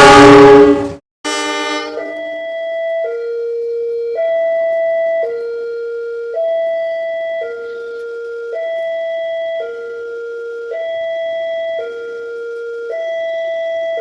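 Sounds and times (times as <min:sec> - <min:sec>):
loud horn blast: 0:00.0 - 0:02.1
two-tone hi-lo siren: 0:00.0 - 0:14.0.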